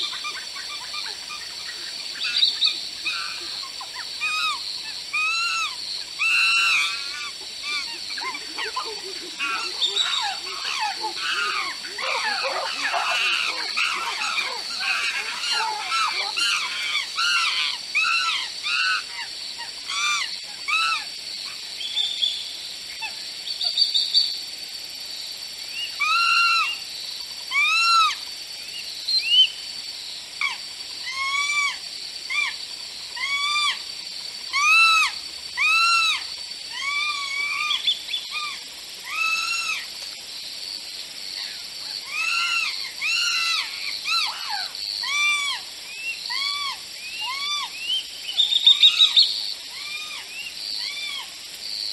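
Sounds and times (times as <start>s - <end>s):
whistled animal calls: 0.0s - 21.1s, 34.5s - 39.9s, 41.4s - 51.4s
steady high hiss: 0.0s - 51.9s.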